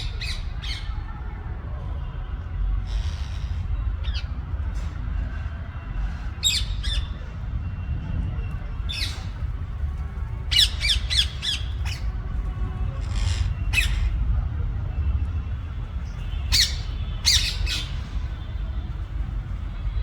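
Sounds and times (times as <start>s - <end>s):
parakeets screeching: 10.5s - 12.2s, 12.9s - 14.2s, 16.1s - 18.5s.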